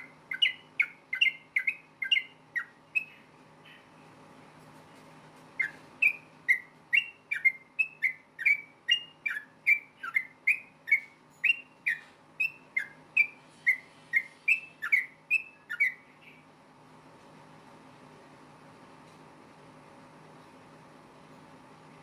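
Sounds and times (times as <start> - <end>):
bird singing whistled notes: 0.0 - 3.9, 5.6 - 16.5.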